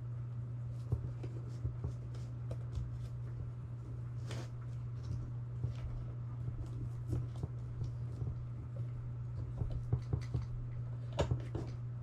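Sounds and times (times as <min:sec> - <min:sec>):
steady low hum: 0:00.0 - 0:12.0
small clicks and taps: 0:06.6 - 0:11.8.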